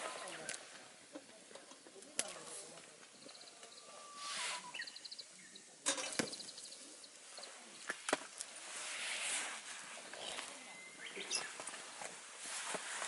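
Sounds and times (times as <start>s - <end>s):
small birds chirping: 0.2s - 8.0s, 10.1s - 11.9s.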